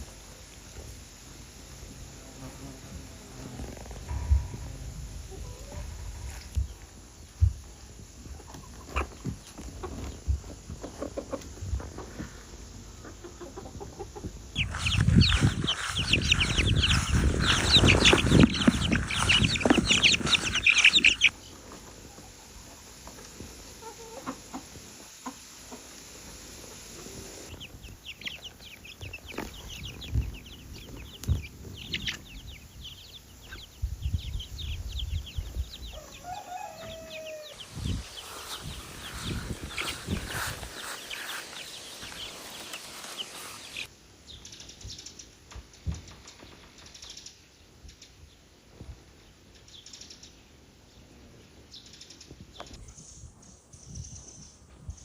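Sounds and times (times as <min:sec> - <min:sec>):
chickens clucking: 0:03.7 - 0:43.9
roosters crowing: 0:13.8 - 0:21.4, 0:35.2 - 0:43.9.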